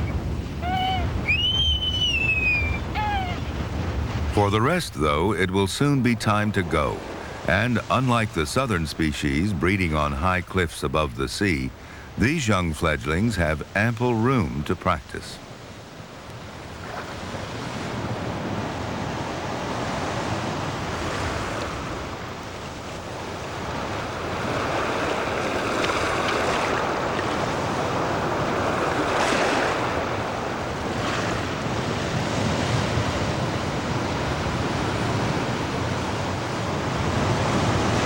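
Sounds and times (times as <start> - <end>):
wind buffeting microphone: 0.0 - 4.4
breaking surf: 0.0 - 15.4, 16.5 - 38.0.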